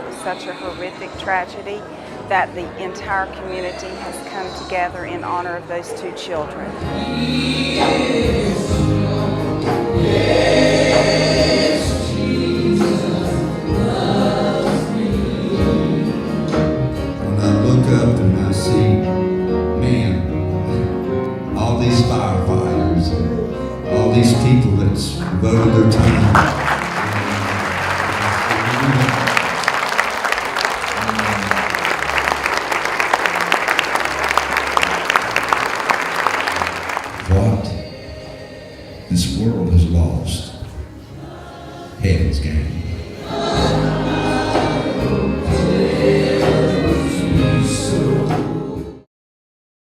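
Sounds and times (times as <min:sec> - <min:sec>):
group singing a hymn: 0:00.0 - 0:01.7, 0:02.9 - 0:18.8, 0:36.4 - 0:49.1
crowd applauding: 0:25.2 - 0:38.0.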